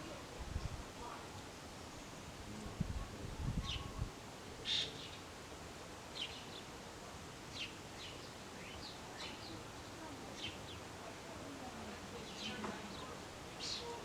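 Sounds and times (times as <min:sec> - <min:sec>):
faint wind hiss: 0:00.0 - 0:14.0
small birds chirping: 0:07.5 - 0:09.6, 0:10.2 - 0:11.0, 0:12.2 - 0:14.0.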